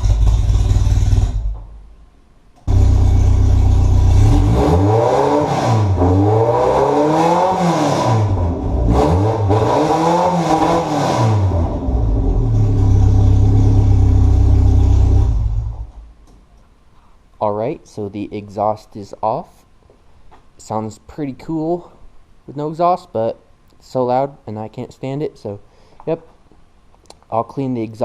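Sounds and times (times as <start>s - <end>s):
car engine idling and revving: 0.0s - 1.6s, 2.7s - 16.1s.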